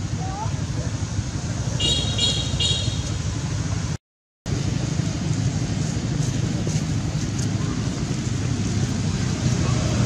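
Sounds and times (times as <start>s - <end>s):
low outdoor rumble: 2.9s - 10.0s.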